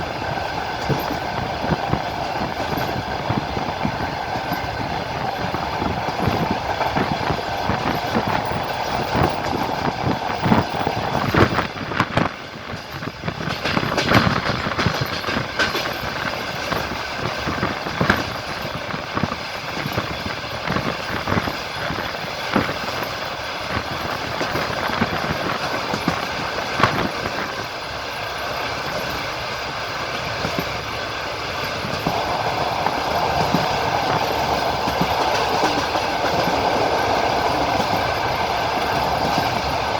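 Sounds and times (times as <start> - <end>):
train rolling rumble: 0.0 - 39.9
wheels knocking over rail joints: 0.8 - 29.2.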